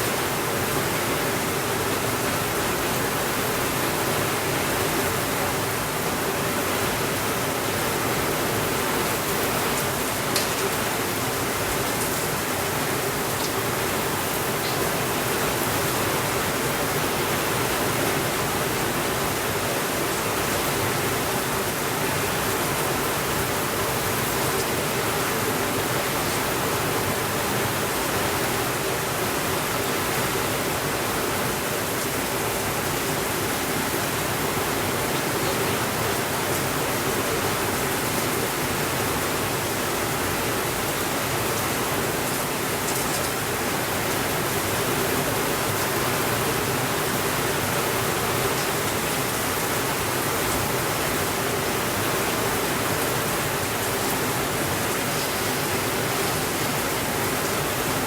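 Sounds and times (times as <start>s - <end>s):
heavy rainfall: 0.0s - 58.0s.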